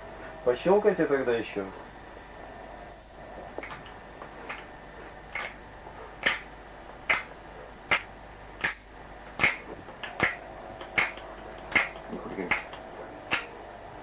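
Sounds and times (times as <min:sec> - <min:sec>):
finger snaps: 0:09.4 - 0:13.5.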